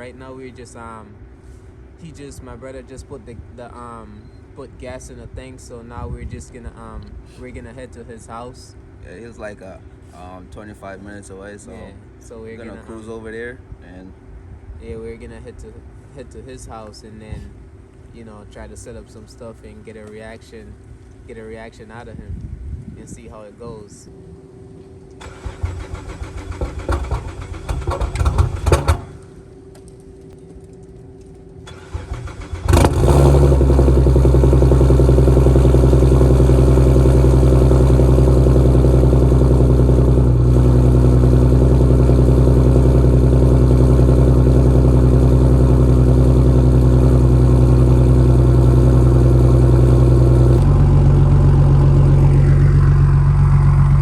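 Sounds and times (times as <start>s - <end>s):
car engine starting and idling: 25.1s - 30.3s, 30.9s - 54.0s.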